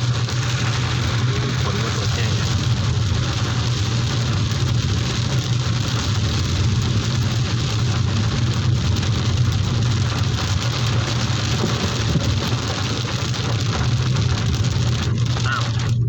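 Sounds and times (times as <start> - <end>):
heavy rain pouring: 0.0 - 16.0
low rumble: 0.0 - 16.0.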